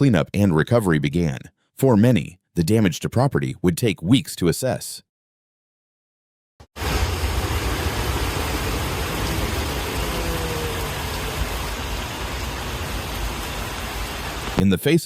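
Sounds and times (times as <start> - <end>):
heavy rain: 6.8 - 14.7.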